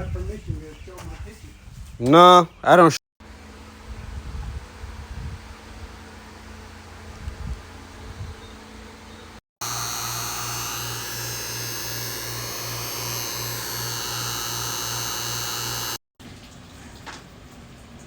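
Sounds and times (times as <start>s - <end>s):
vacuum pump running: 9.6s - 16.0s.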